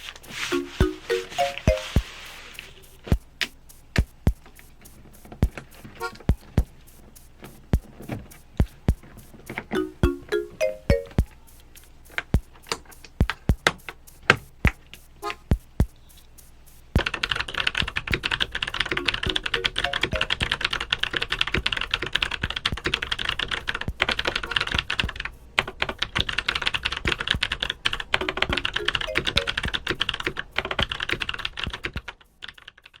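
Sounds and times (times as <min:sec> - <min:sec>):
fast mechanical keyboard typing: 0:17.0 - 0:33.0.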